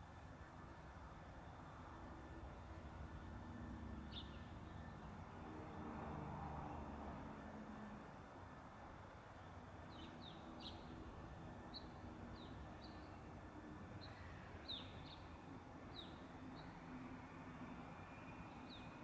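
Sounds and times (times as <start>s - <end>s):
low background noise: 0.0s - 19.0s.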